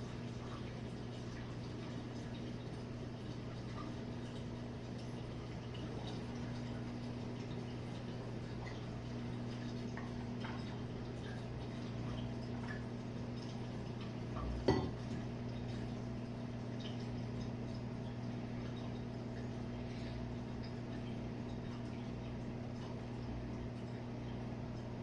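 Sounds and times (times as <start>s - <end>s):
dishwasher motor hum: 0.0s - 25.0s
dishes clinking: 14.6s - 15.0s.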